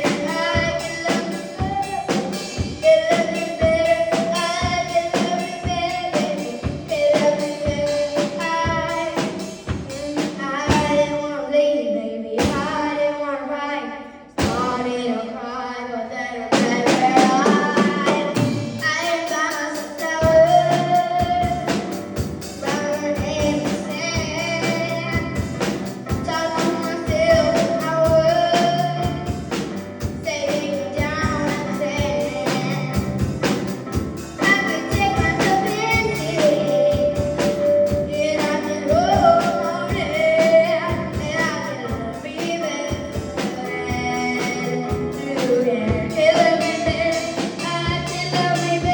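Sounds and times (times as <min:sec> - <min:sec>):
instrumental accompaniment with beat: 0:00.0 - 0:11.0, 0:16.5 - 0:48.9
woman singing pop ballad: 0:14.4 - 0:21.6, 0:38.0 - 0:48.9.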